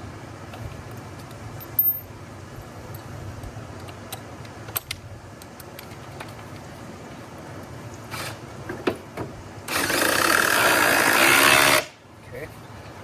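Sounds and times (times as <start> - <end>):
low steady hum: 0.0 - 10.1
metal hardware clicking and rattling: 1.6 - 2.1.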